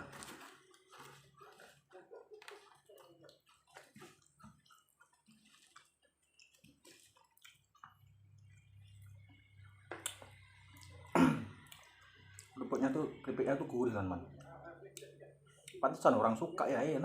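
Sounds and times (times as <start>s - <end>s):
person chewing: 0.1s - 12.8s
mouth clicks and lip smacks: 2.4s - 9.2s.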